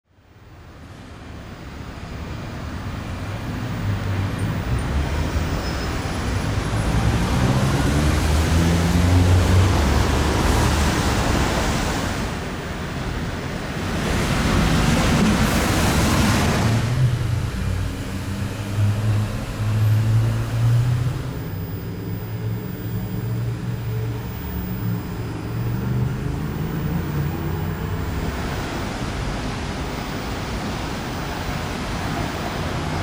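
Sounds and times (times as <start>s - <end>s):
steady rushing noise: 1.3s - 33.0s
low vehicle rumble: 13.8s - 29.8s.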